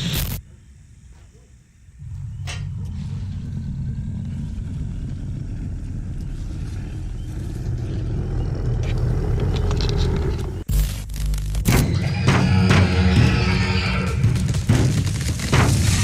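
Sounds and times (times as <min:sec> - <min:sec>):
steady low rumble: 0:01.8 - 0:11.6.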